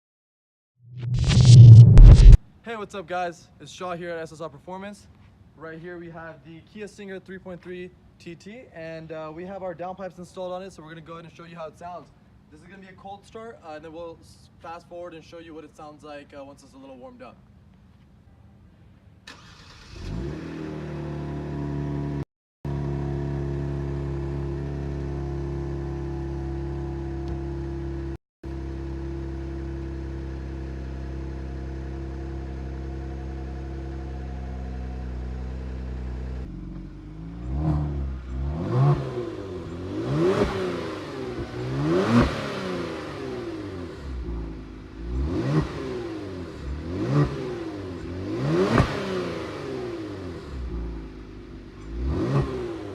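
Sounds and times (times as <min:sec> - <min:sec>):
engine free-revving: 0:00.9 - 0:02.4, 0:19.3 - 0:27.0, 0:36.4 - 0:51.1, 0:51.8 - 0:52.9
car engine cold start: 0:19.2 - 0:20.6.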